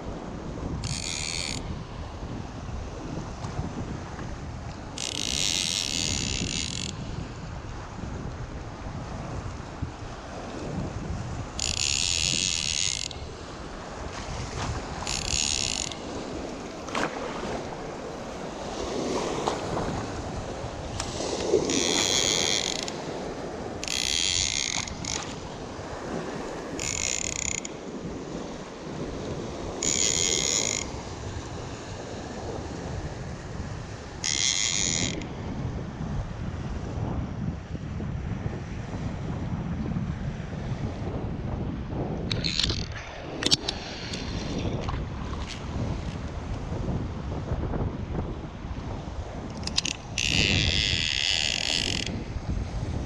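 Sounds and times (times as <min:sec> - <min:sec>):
wind noise on microphone: 0:00.0 - 0:53.0
fishing reel ratcheting: 0:00.8 - 0:01.7, 0:05.0 - 0:07.0, 0:11.6 - 0:13.3, 0:15.0 - 0:16.1, 0:21.7 - 0:23.0, 0:23.8 - 0:25.4, 0:26.8 - 0:27.8, 0:29.8 - 0:30.9, 0:34.2 - 0:35.3, 0:42.3 - 0:46.2, 0:49.5 - 0:52.2.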